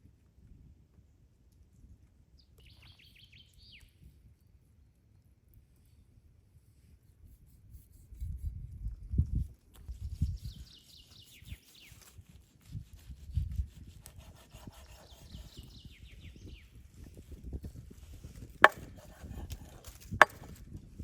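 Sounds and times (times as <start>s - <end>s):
knocks on wood: 18.6s - 19.4s, 20.2s - 20.5s.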